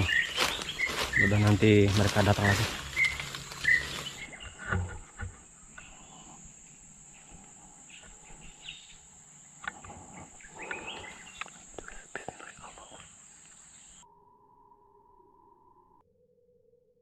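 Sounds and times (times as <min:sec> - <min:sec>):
insects droning: 0:00.0 - 0:16.0
faint bird chirps: 0:00.0 - 0:16.6
light clicks: 0:10.6 - 0:13.6.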